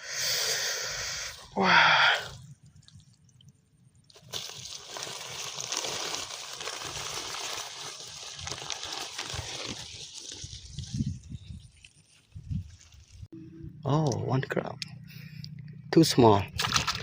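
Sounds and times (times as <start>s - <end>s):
shallow water sloshing and splashing: 2.2s - 13.3s, 16.6s - 17.0s
small crackles: 4.1s - 13.3s.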